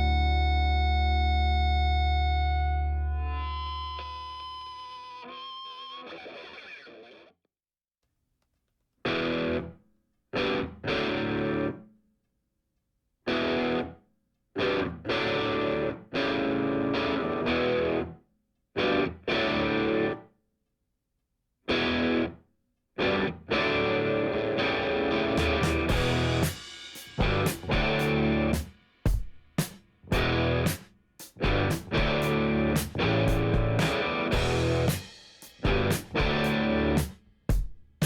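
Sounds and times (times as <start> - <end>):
distorted electric guitar chords: 10.4 - 11.8, 14.6 - 18.1, 23.0 - 26.6, 27.2 - 28.6, 30.1 - 30.8, 31.4 - 37.1.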